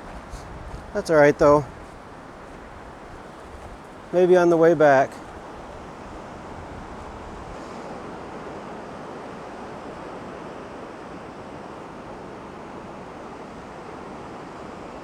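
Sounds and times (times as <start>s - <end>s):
lake surf washing onto beach: 0.0s - 15.0s
strong wind: 0.0s - 15.0s.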